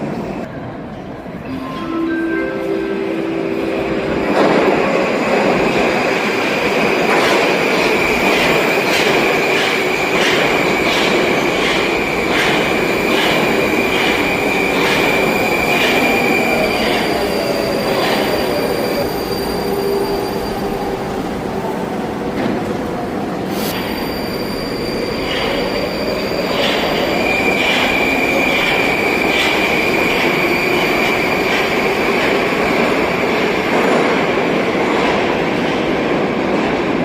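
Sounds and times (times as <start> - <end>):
train wheels squealing: 7.9 - 20.9, 23.5 - 31.8.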